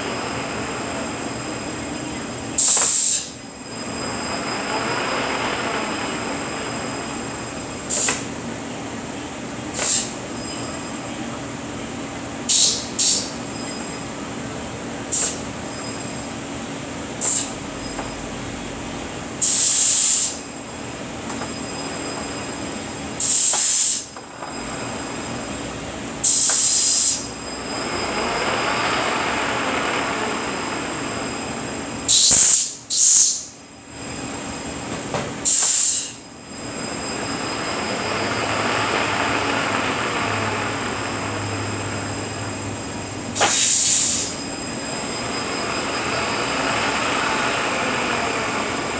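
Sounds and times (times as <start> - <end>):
transmission humming: 0.0 - 9.6, 24.1 - 32.3, 36.2 - 48.9
gear whine: 0.0 - 48.9
sharp hisses of air: 2.6 - 3.4, 7.8 - 8.4, 9.7 - 10.2, 12.5 - 13.4, 15.1 - 15.5, 17.2 - 17.6, 19.4 - 20.5, 23.2 - 24.2, 26.2 - 27.4, 32.1 - 33.5, 35.4 - 36.2, 43.4 - 44.4.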